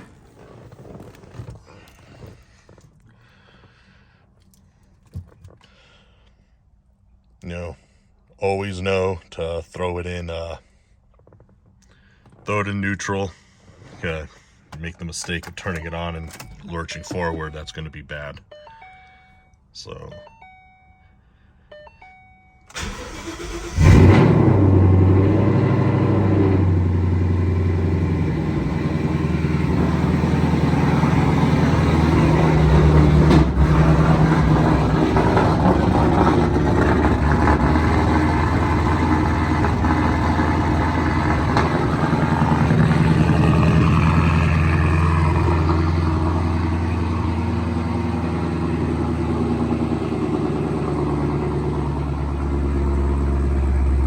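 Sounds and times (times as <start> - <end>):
car engine idling high: 22.7 - 54.0.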